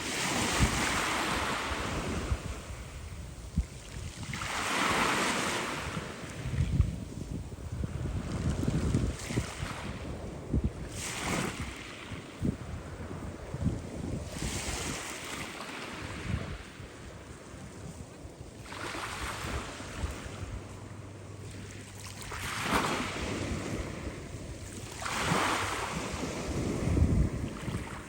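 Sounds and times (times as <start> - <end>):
sea waves breaking: 0.0 - 6.9, 7.7 - 28.0
wind buffeting microphone: 0.0 - 28.0.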